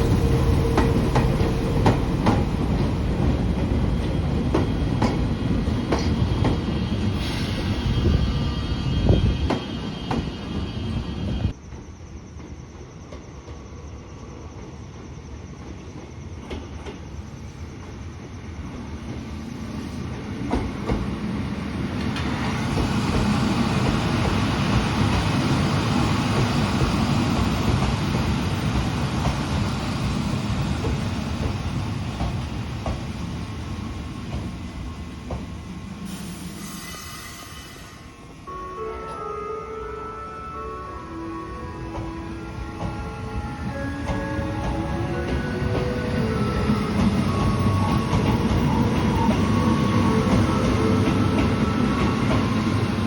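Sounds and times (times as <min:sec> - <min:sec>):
train wheels rumbling on rail: 0:00.0 - 0:39.3, 0:40.7 - 0:53.0
electric train passing: 0:00.0 - 0:53.0.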